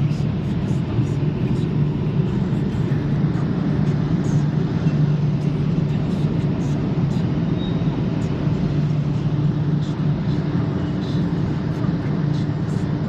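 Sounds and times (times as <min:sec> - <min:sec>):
car wash mechanical drone: 0:00.0 - 0:13.0.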